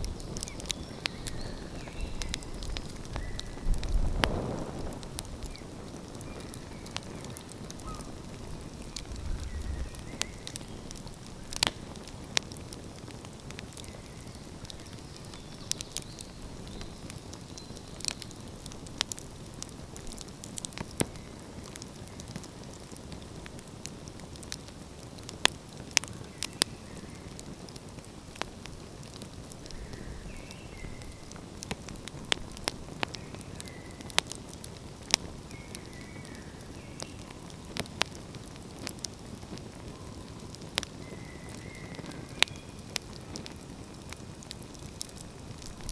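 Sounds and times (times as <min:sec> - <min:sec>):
low hiss: 0:00.0 - 0:13.2
wood fire crackling: 0:00.0 - 0:45.9.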